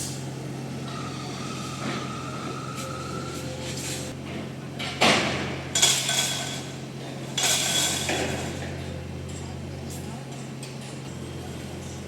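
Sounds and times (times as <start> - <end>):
machinery humming: 0.0 - 4.7.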